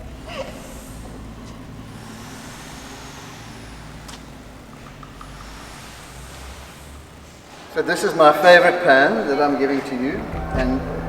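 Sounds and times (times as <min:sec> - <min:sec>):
low background rumble: 0:00.0 - 0:07.6, 0:10.0 - 0:11.0.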